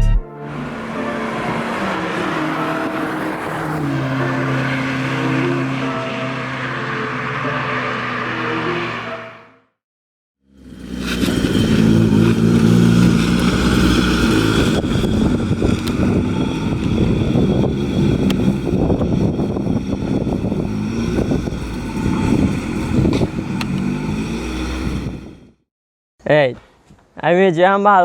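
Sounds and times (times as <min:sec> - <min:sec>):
car engine running: 0:10.5 - 0:25.5.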